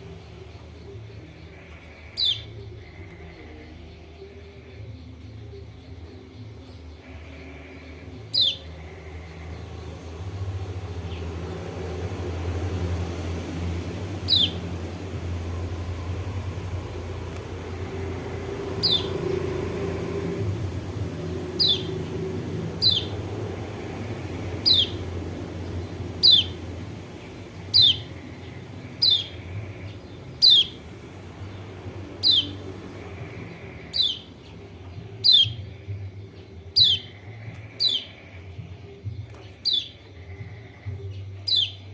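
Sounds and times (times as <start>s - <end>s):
steady low rumble: 0.0s - 41.9s
bird sharp downward calls: 14.2s - 14.6s.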